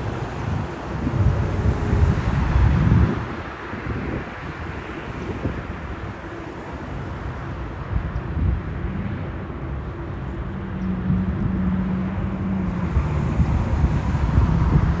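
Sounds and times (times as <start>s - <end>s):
jet airliner rumbling: 0.0s - 7.3s
wind buffeting microphone: 0.0s - 15.0s.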